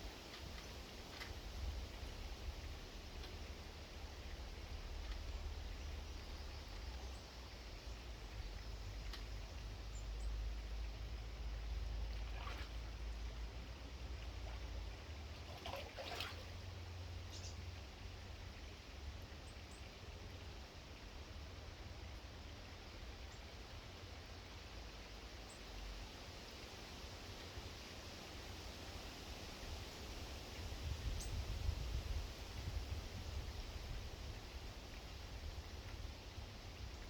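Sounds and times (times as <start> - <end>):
low steady rumble: 0.0 - 26.3
faint bird chirps: 17.3 - 17.6.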